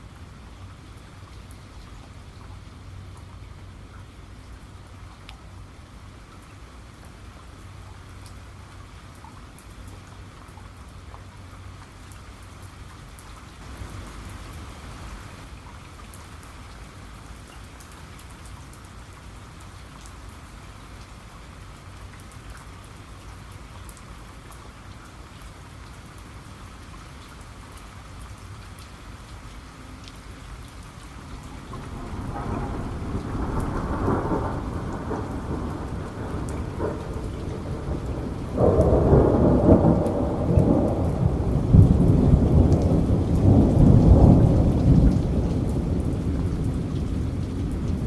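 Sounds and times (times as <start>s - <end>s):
steady rain with ticking drops: 0.0s - 48.0s.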